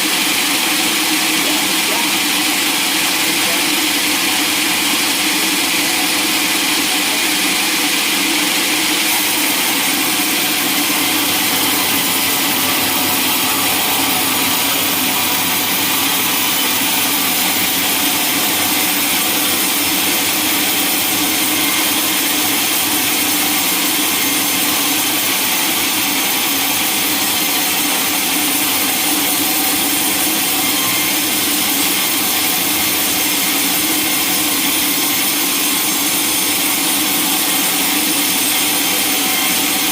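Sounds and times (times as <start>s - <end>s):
sawmill saw and machinery running: 0.0s - 39.9s.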